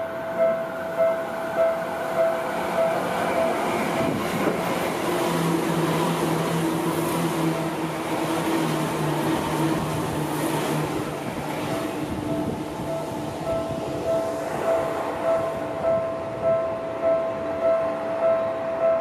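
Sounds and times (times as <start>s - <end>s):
level-crossing warning bell: 0.0s - 4.6s, 11.2s - 19.0s
low hum from train cars: 0.0s - 19.0s
wheels roaring on rail: 0.0s - 19.0s.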